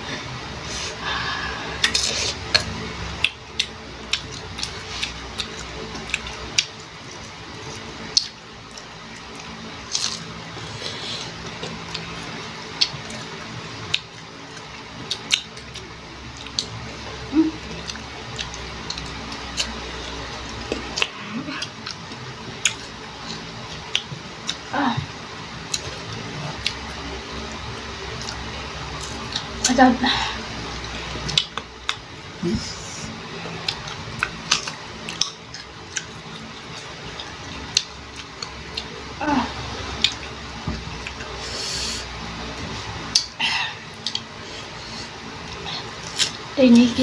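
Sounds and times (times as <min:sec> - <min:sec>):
crunching bites and chewing: 0:01.8 - 0:16.8, 0:17.8 - 0:24.7, 0:33.5 - 0:38.9
lip smacks: 0:45.5 - 0:46.4.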